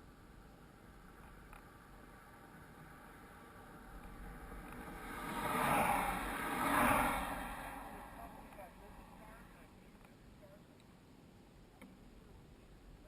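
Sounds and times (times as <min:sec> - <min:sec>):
road vehicle passing: 0:00.0 - 0:09.9
low background noise: 0:00.0 - 0:13.0.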